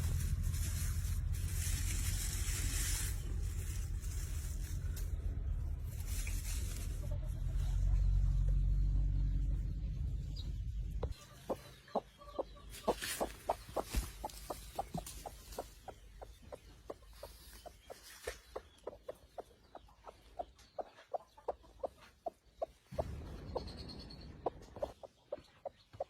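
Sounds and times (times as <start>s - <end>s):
low rumble: 0.0s - 11.2s, 22.9s - 25.0s
hen clucking: 11.0s - 26.0s.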